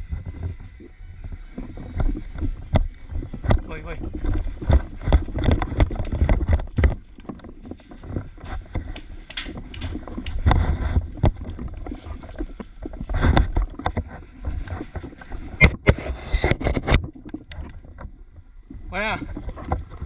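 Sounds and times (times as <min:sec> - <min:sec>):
gear rustling: 0:00.0 - 0:15.6
footsteps: 0:00.0 - 0:17.9
rumbling bumps on microphone: 0:00.0 - 0:18.1.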